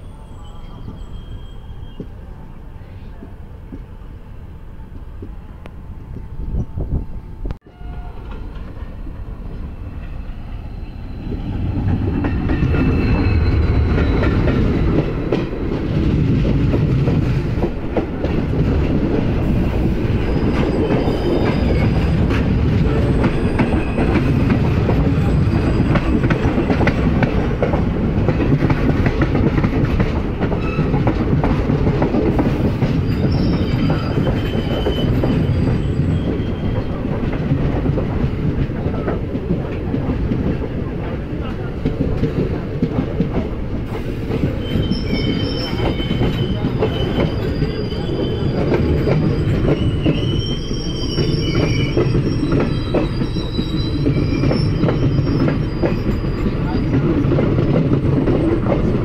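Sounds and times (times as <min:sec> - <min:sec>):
wheel squeals: 0:00.0 - 0:03.1, 0:10.6 - 0:15.4, 0:19.4 - 0:27.0, 0:32.5 - 0:37.0, 0:44.0 - 0:58.9
passing train rumble: 0:00.0 - 0:59.0.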